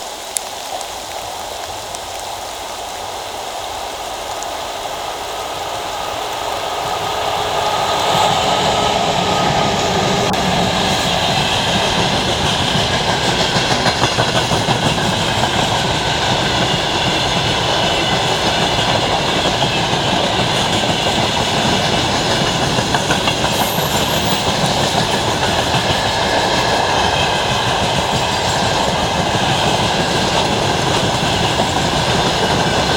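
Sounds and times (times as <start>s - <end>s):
train rumble: 3.0s - 32.9s.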